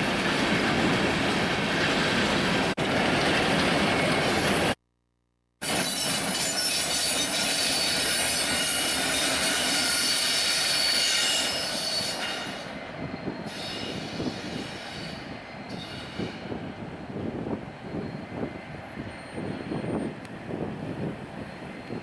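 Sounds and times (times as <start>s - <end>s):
train wheels squealing: 5.6s - 22.0s.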